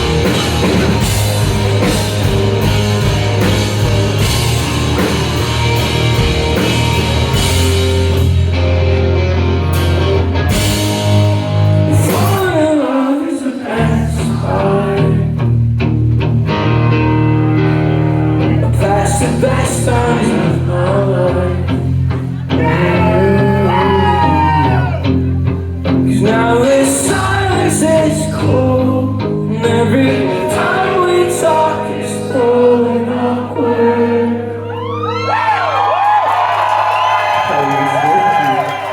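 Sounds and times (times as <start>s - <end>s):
live rock band: 0.0s - 38.9s
person singing: 11.8s - 15.4s, 18.4s - 25.0s, 26.0s - 35.1s.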